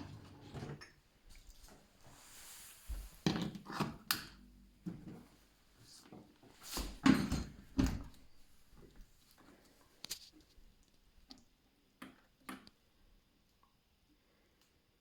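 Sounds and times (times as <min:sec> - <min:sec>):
dishwasher clunks and clatters: 0:06.7 - 0:08.3.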